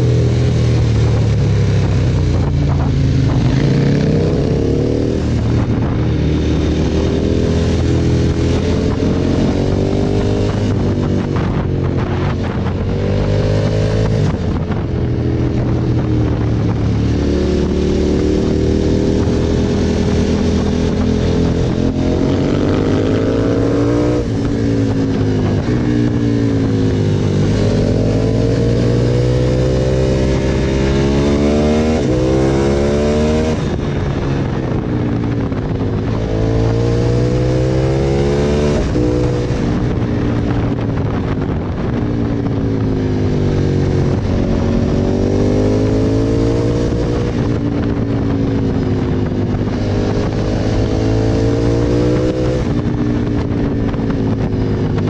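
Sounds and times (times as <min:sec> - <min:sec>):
motorcycle engine revving through gears: 0:00.0 - 0:55.0.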